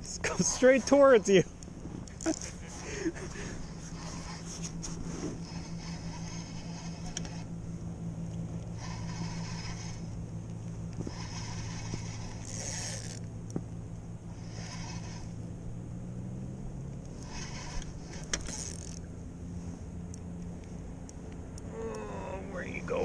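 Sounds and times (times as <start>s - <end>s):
steady low hum: 0.0s - 23.0s
fishing reel whirring: 2.0s - 10.3s, 10.9s - 13.3s, 14.2s - 15.6s, 17.1s - 19.1s.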